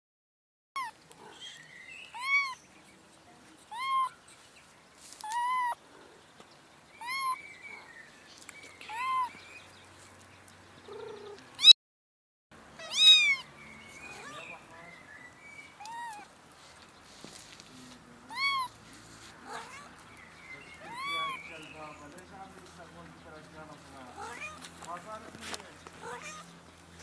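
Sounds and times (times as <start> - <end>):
cat meowing: 0.8 - 2.6, 3.7 - 4.2, 5.2 - 5.8, 7.0 - 7.4, 8.9 - 9.4, 10.9 - 11.8, 12.8 - 13.5, 14.1 - 14.5, 15.8 - 16.3, 18.3 - 18.8, 19.4 - 20.0, 20.8 - 21.4, 24.2 - 24.7, 26.0 - 26.5.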